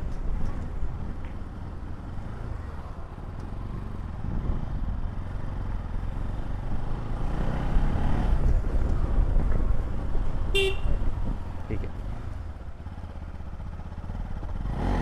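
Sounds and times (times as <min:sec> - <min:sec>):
road noise: 0:00.0 - 0:15.0
motorcycle engine running: 0:03.5 - 0:15.0.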